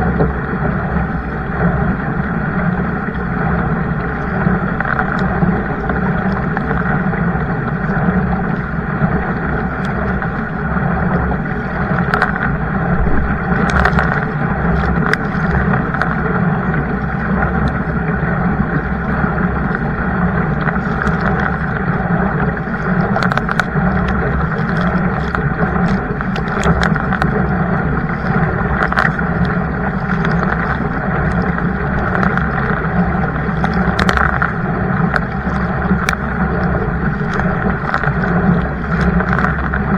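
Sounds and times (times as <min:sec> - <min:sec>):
water rushing: 0:00.0 - 0:39.9
wind noise: 0:00.0 - 0:39.9
small sharp ticks and knocks: 0:02.5 - 0:39.9.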